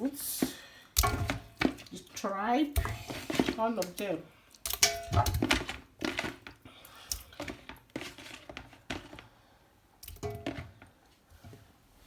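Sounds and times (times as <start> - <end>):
knocks and thunks of cooking pot: 1.0 - 1.8, 2.8 - 3.6, 4.7 - 5.8, 10.2 - 10.8.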